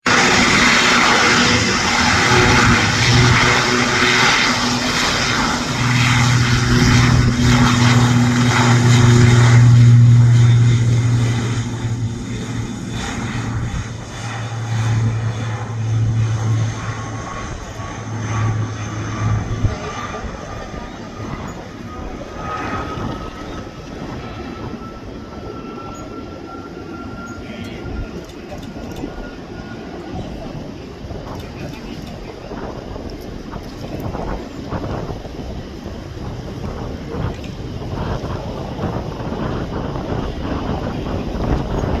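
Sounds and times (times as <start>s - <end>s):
steady low hum: 0.0s - 32.0s
propeller aircraft drone: 0.0s - 42.0s.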